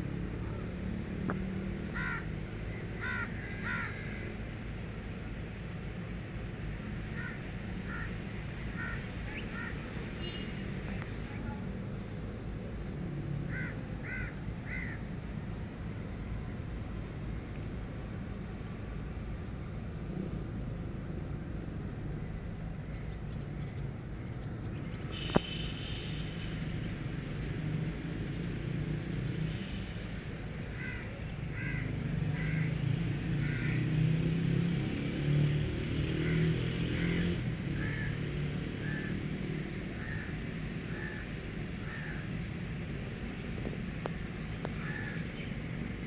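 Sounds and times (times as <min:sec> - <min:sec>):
low outdoor rumble: 0:00.0 - 0:33.8
crow cawing: 0:01.9 - 0:02.3, 0:03.0 - 0:04.4, 0:07.1 - 0:09.8, 0:13.5 - 0:15.1, 0:30.7 - 0:32.8, 0:33.4 - 0:33.9, 0:37.8 - 0:38.2, 0:38.8 - 0:39.2, 0:40.0 - 0:42.3, 0:44.8 - 0:45.3.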